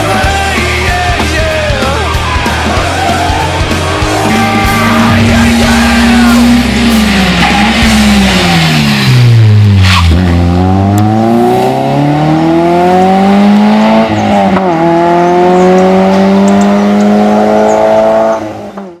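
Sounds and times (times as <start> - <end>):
rally car engine accelerating: 0.0 - 19.0.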